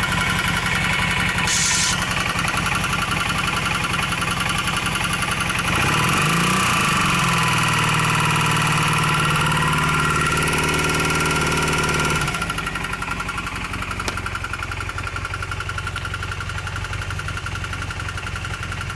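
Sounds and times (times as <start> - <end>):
motorcycle engine knocking: 2.1 - 18.9.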